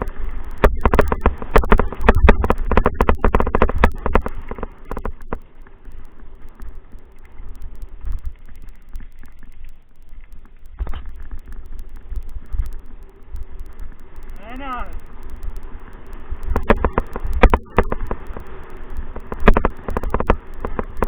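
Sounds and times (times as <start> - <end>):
wind on microphone: 0.0 - 5.4.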